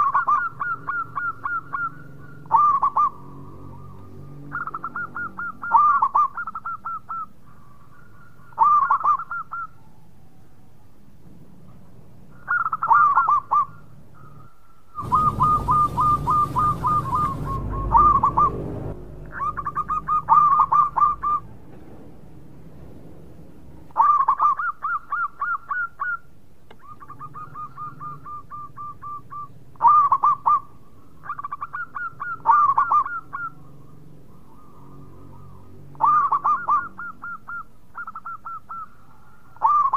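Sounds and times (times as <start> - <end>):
dove cooing: 0.0 - 10.0, 11.6 - 21.5, 24.0 - 39.9
hiss and low rumble: 15.0 - 24.0.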